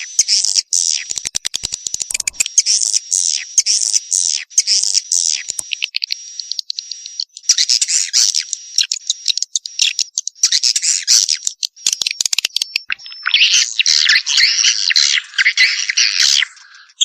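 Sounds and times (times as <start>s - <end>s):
swiftlet chick chittering: 0.0s - 17.0s
thin steady high tone: 2.1s - 2.5s.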